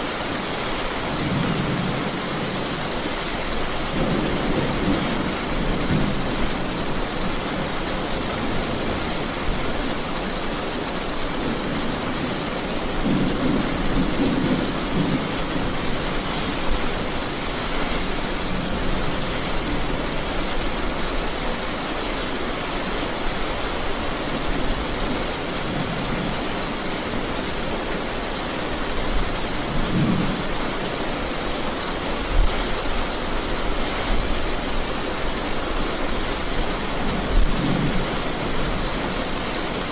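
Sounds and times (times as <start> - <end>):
steady rain falling: 0.0 - 39.9
thunder rumbling: 3.6 - 9.6, 11.4 - 20.4.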